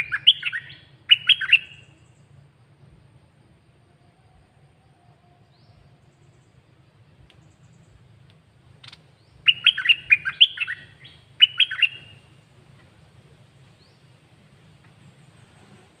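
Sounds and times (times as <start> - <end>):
bird singing whistled notes: 0.0 - 2.4, 4.5 - 6.6, 8.8 - 12.4, 13.6 - 14.2.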